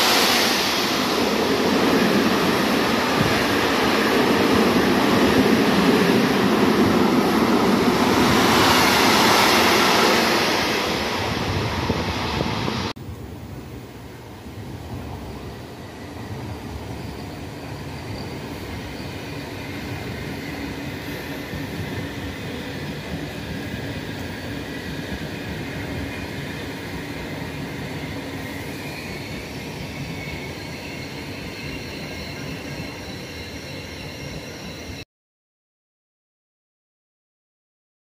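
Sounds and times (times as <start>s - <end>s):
thin high squealing tones: 28.4s - 35.0s.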